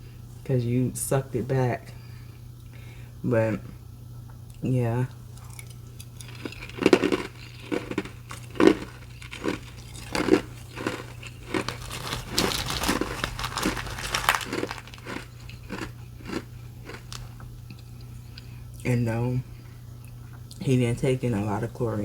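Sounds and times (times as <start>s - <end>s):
person crunching ice: 6.2s - 17.2s.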